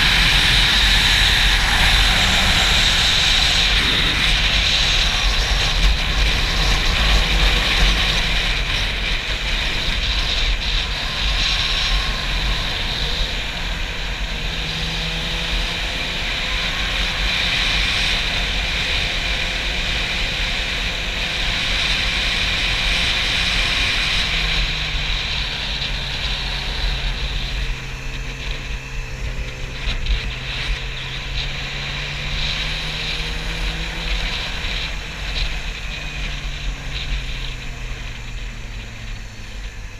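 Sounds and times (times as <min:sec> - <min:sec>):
wind buffeting microphone: 0:00.0 - 0:15.4
motorcycle engine running: 0:00.0 - 0:39.9.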